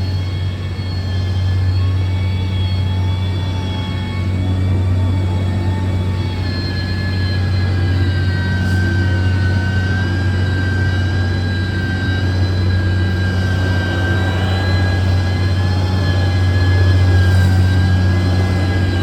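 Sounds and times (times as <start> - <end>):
diesel machine engine humming: 0.0 - 19.0
high whine: 0.0 - 19.0.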